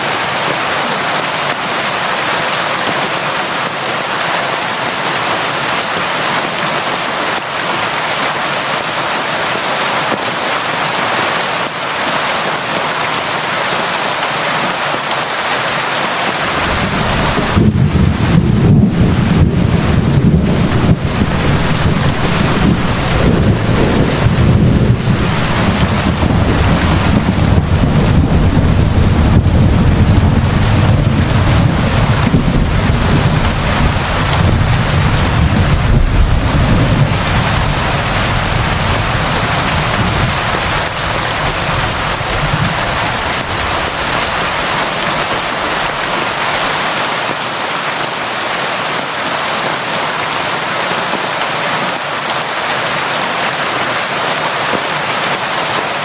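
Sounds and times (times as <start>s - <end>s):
heavy rain pouring: 0.0s - 56.0s
deep low rumble: 16.5s - 40.5s.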